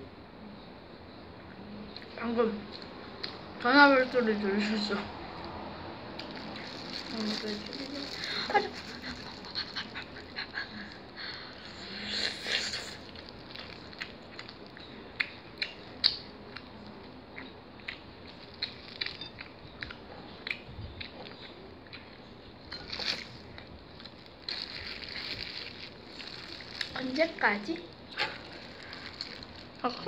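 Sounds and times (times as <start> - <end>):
wet mouth clicks and smacks: 15.2 - 16.2
rustling: 24.0 - 30.0.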